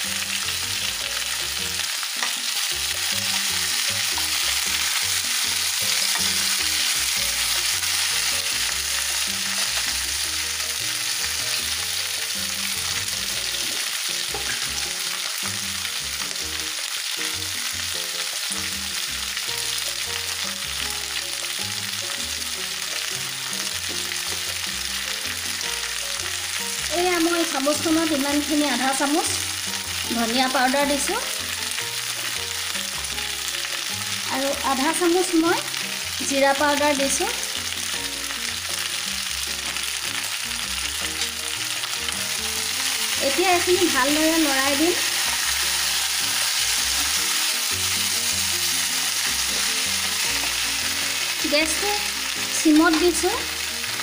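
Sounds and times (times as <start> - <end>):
food sizzling in oil: 0.0 - 54.0.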